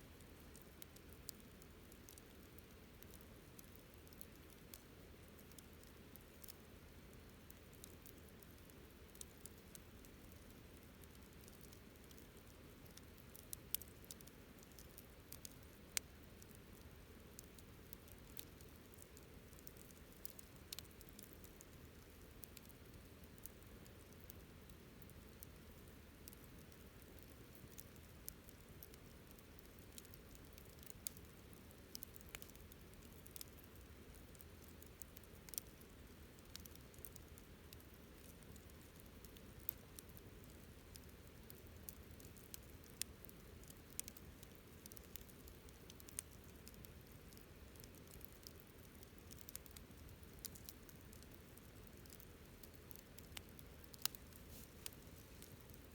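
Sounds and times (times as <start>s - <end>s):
campfire crackling: 0.2s - 55.9s.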